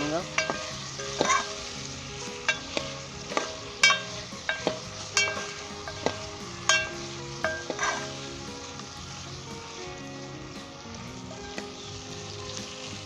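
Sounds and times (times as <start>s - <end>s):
food sizzling: 0.0s - 13.0s
spoon knocking against pot: 2.5s - 8.1s.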